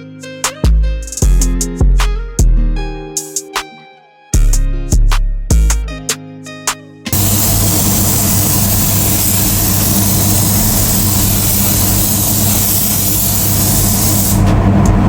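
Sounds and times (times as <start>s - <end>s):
machine humming and hissing: 7.1s - 15.0s.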